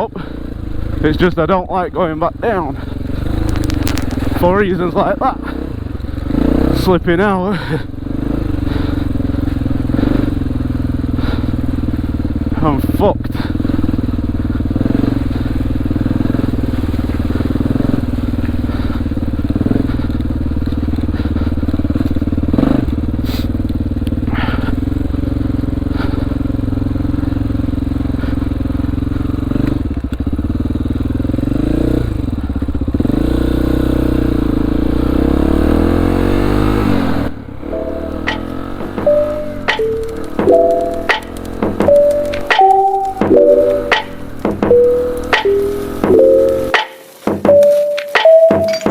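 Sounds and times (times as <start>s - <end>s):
motorcycle engine running: 0.0s - 48.9s
sharp knocks: 37.7s - 48.9s.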